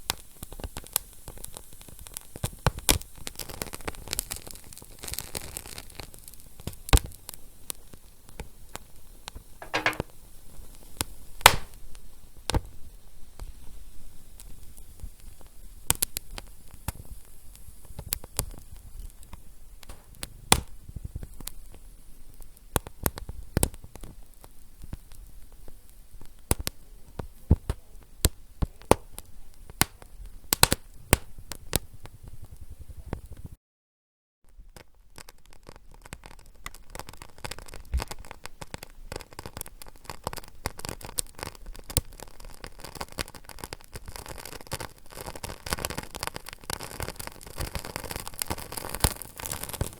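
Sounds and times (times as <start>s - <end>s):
wood fire crackling: 11.4s - 11.9s, 35.2s - 49.9s.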